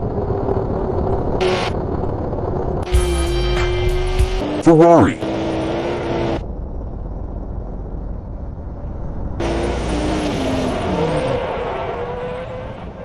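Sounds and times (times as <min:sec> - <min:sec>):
car engine revving: 0:00.7 - 0:06.5, 0:09.4 - 0:13.0.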